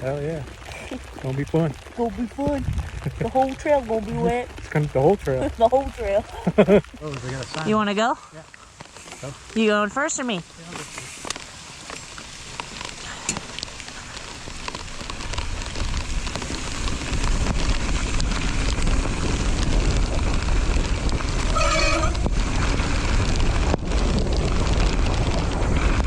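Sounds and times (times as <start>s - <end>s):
wind rushing over microphone: 0.0s - 8.0s, 9.3s - 26.0s
bike tyre noise on dirt: 0.0s - 26.0s
brief squeal: 21.5s - 22.3s.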